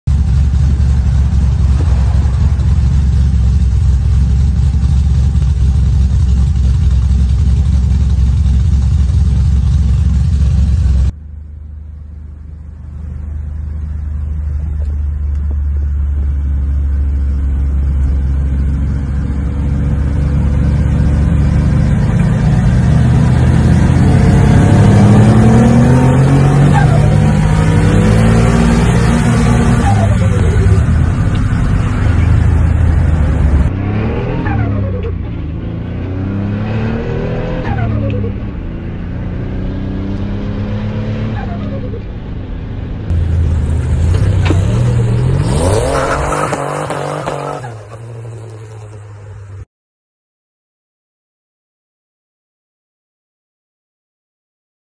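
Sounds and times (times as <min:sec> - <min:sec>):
car engine revving in cabin: 0:14.6 - 0:42.2, 0:43.1 - 0:48.0.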